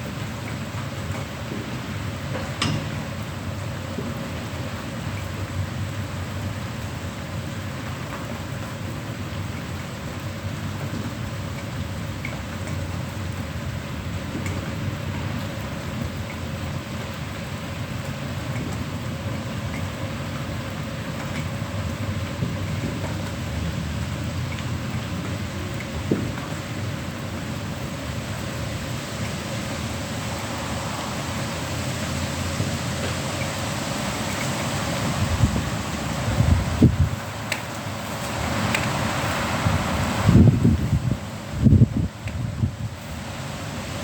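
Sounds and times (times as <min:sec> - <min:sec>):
rain falling steadily: 0:00.0 - 0:44.0
low thunder rumble: 0:25.1 - 0:34.4.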